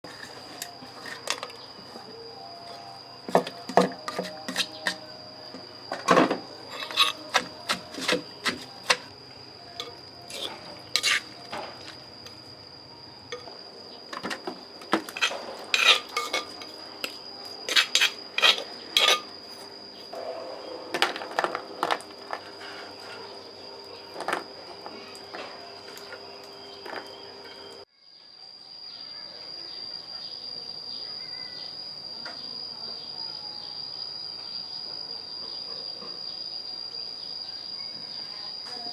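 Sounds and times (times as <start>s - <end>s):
dishes and utensils clinking: 3.3s - 5.0s, 6.0s - 9.1s, 9.8s - 12.4s, 14.1s - 19.3s.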